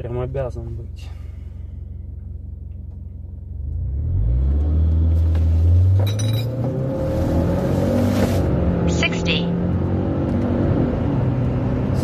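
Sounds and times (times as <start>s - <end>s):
car engine accelerating: 0.8s - 12.0s.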